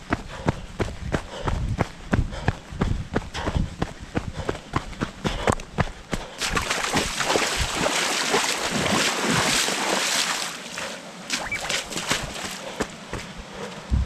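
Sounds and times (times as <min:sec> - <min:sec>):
running footsteps on dirt: 0:00.0 - 0:07.9, 0:11.3 - 0:14.0.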